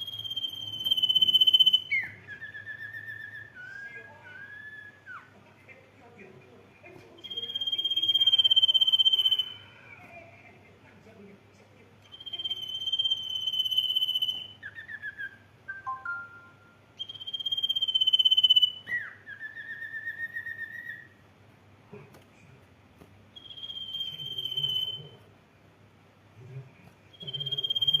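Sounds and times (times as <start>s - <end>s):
songbird whistling song: 0.0s - 5.4s, 7.2s - 10.0s, 12.0s - 21.2s, 23.3s - 25.2s, 27.1s - 28.0s.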